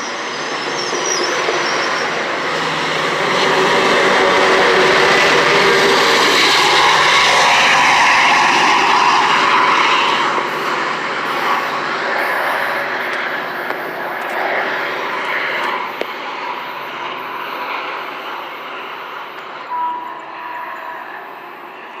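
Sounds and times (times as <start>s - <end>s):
passenger train rushing by: 0.0s - 22.0s.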